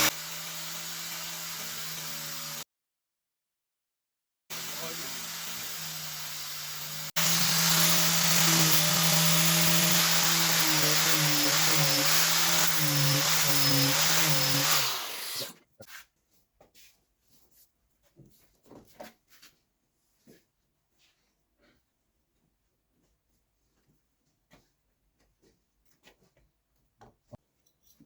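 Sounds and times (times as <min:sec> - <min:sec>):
power tool motor running: 0:00.0 - 0:02.6, 0:04.5 - 0:15.6.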